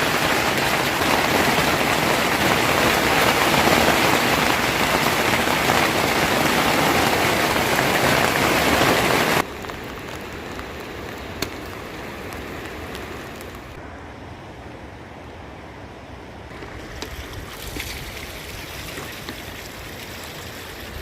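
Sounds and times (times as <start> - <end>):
heavy rain hissing: 0.0 - 13.9
light rain: 0.0 - 21.0.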